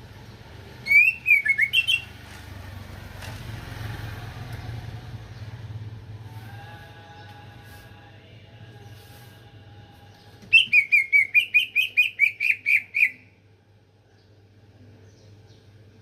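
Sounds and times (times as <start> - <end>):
bird chirping: 0.8 - 2.2, 10.1 - 13.3.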